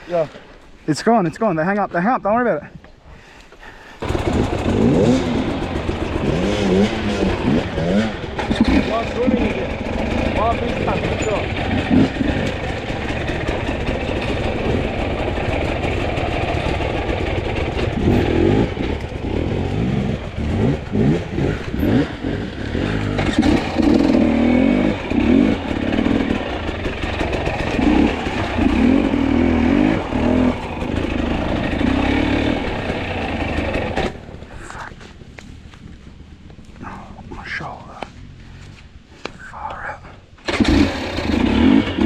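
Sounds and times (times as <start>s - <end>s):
dirt bike engine revving: 4.0s - 34.5s, 40.4s - 42.0s.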